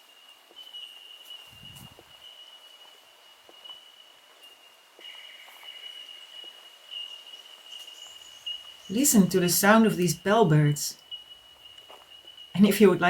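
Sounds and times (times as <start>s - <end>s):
bellbirds calling: 5.1s - 13.0s
faint ticks: 11.0s - 12.5s.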